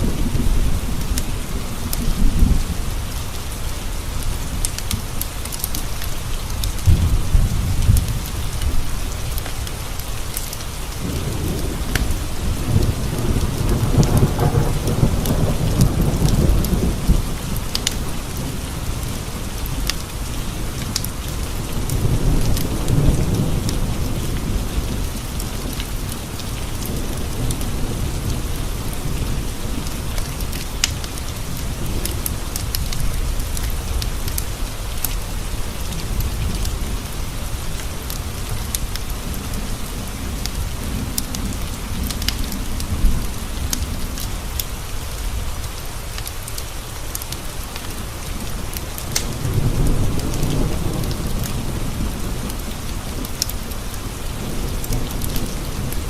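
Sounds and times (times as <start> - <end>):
rain pattering on windows: 0.0 - 56.0
low rolling thunder: 6.8 - 9.8, 10.8 - 45.7, 47.4 - 56.0
wood fire crackling: 29.5 - 35.2, 44.5 - 50.4.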